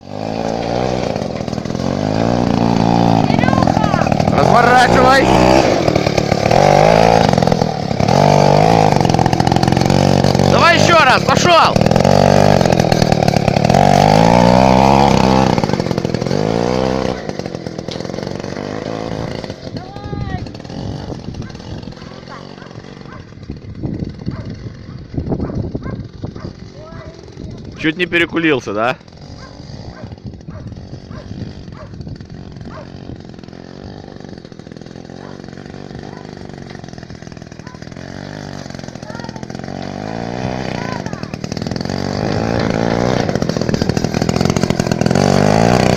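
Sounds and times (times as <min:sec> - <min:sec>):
two-stroke engine revving: 0:00.0 - 0:45.9.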